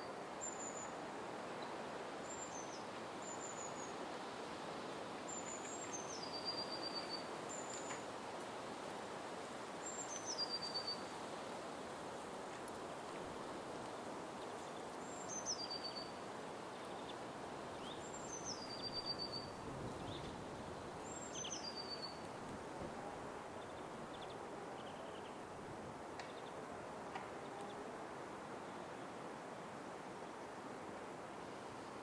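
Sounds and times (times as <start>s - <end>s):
faint bird chirps: 21.0s - 22.3s.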